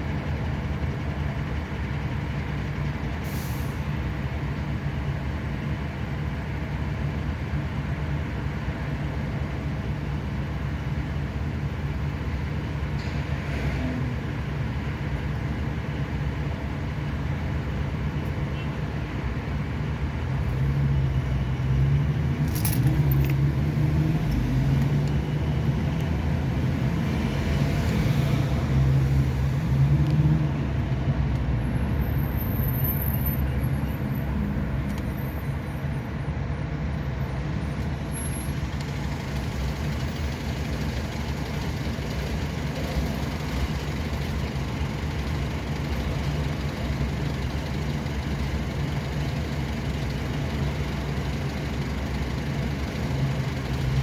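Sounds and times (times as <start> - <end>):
road noise: 0.0 - 54.0
vehicle engine running: 14.1 - 54.0.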